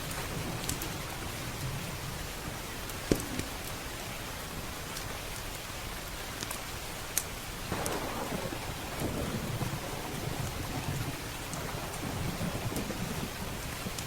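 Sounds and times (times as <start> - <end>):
heavy rain: 0.0 - 14.0
thunder rumbling: 7.7 - 14.0.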